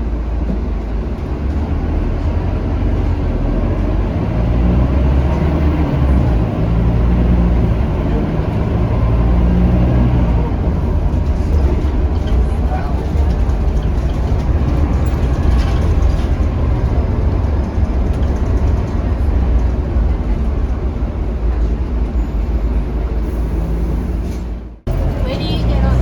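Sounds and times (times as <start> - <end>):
diesel bus engine rumble: 0.0 - 26.0
road noise: 0.0 - 26.0.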